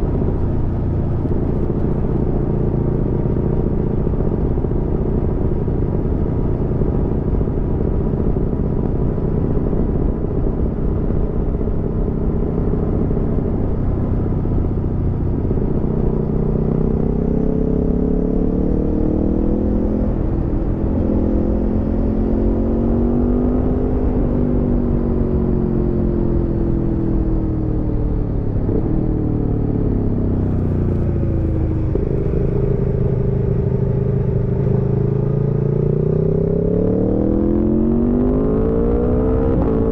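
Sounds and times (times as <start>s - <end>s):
motorcycle engine revving: 28.6s - 39.9s.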